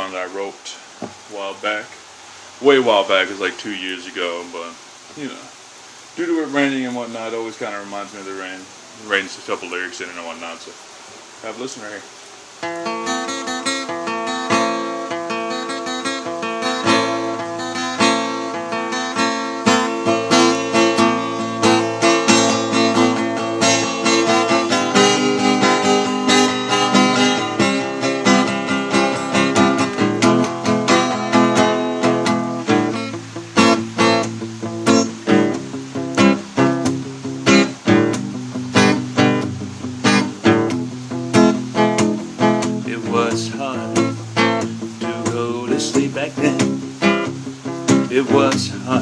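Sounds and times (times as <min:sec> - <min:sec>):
acoustic guitar strumming: 0:12.6 - 0:49.0.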